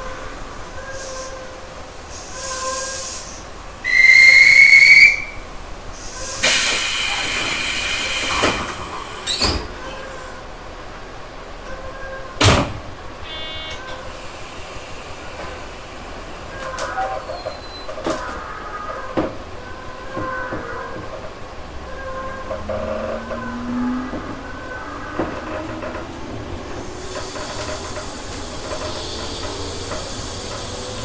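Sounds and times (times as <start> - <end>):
train whistle blast: 0.7 - 1.6, 2.2 - 7.2, 13.2 - 14.2
compressed air rush: 5.8 - 9.6, 14.1 - 16.5, 25.9 - 31.0.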